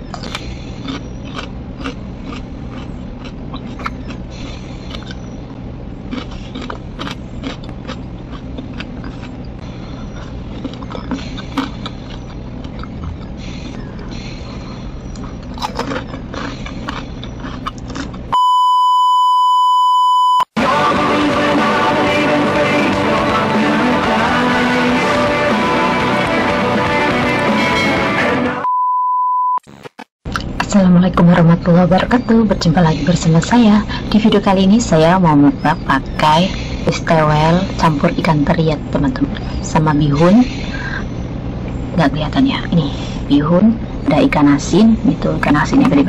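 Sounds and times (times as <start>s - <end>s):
crunches and mouth clicks: 0.0s - 14.2s, 15.1s - 18.4s
person chewing food: 0.0s - 18.4s
low steady hum: 0.0s - 28.8s, 29.7s - 46.0s
steady test-tone beep: 18.3s - 20.5s, 28.6s - 29.6s
music: 20.6s - 28.7s.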